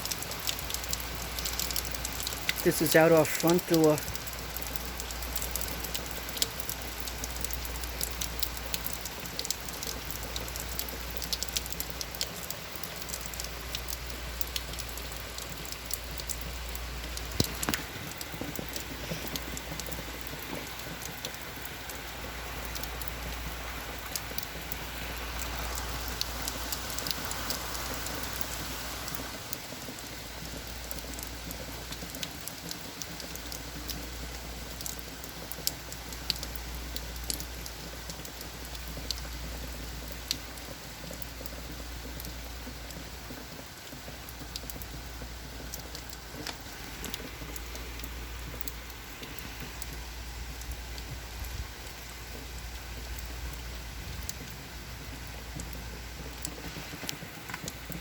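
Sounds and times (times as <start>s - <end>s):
sharp raindrop hits: 0.0s - 40.7s, 41.4s - 58.0s
heavy rain falling: 0.0s - 58.0s.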